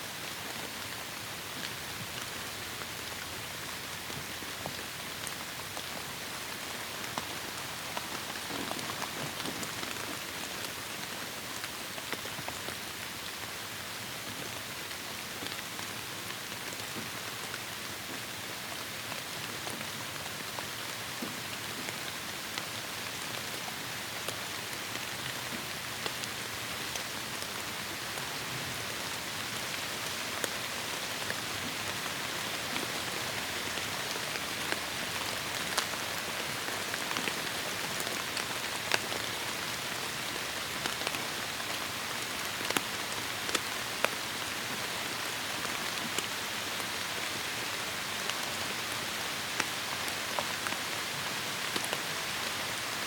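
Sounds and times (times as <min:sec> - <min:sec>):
heavy rain falling: 0:25.8 - 0:53.0.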